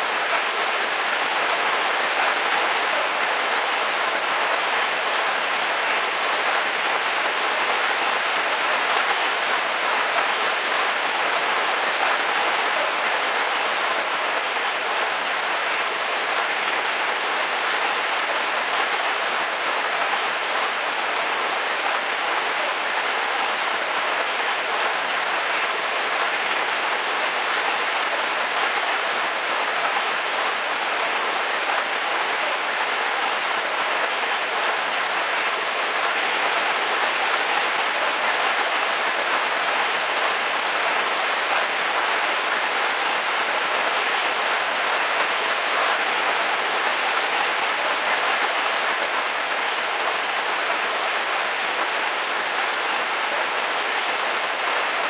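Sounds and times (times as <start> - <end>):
heavy rain drumming on a roof: 0.0 - 55.0.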